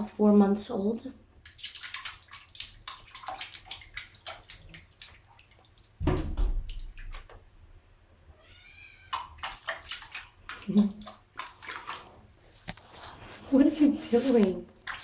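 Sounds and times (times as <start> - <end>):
kitten splashing water: 0.8 - 7.6, 9.0 - 15.0
deep thump: 6.0 - 6.7.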